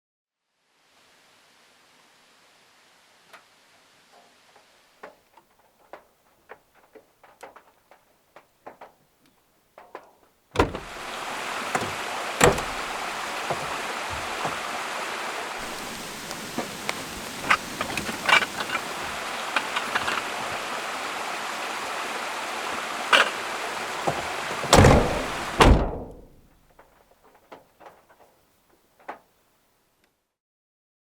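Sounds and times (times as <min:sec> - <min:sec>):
raindrops tapping: 0:05.0 - 0:26.4
heavy rain downpour: 0:10.6 - 0:25.8.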